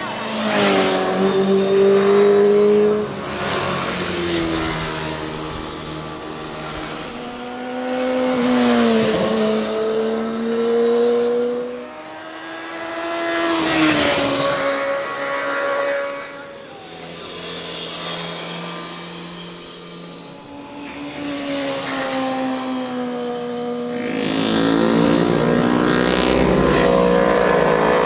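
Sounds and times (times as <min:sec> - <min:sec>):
motorcycles passing at speed: 0:00.0 - 0:28.0.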